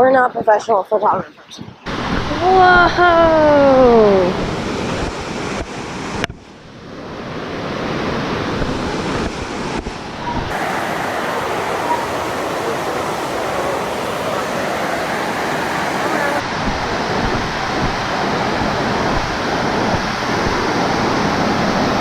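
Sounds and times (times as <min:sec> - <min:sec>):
waterfall rushing: 0:10.5 - 0:16.5.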